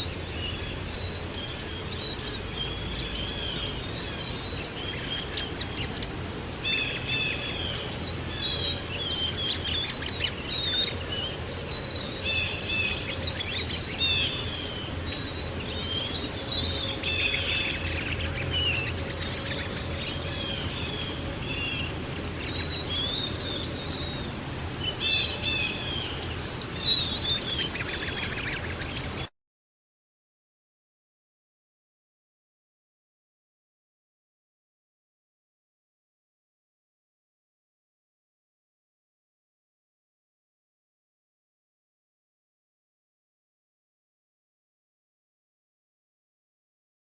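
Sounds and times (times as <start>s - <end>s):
songbirds chirping chorus: 0.0s - 29.3s.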